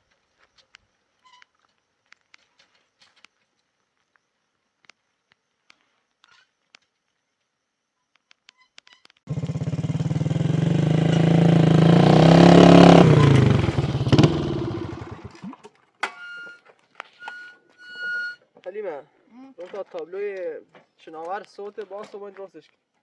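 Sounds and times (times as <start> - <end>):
engine running: 9.3 - 15.4.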